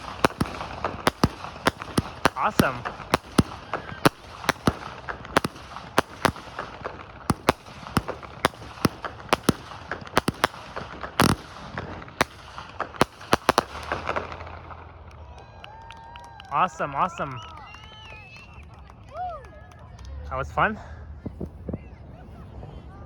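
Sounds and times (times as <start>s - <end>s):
heavy firework blast: 0.0s - 15.1s
fireworks banging: 0.0s - 15.2s.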